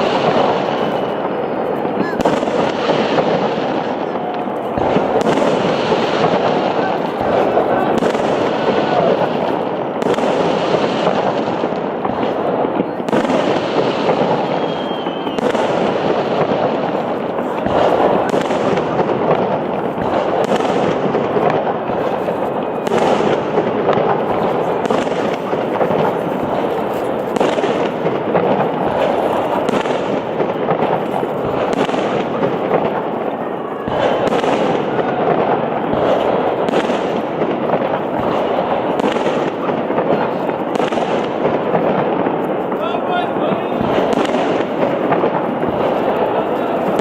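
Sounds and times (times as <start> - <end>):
sharp firework bangs: 0.0 - 47.0.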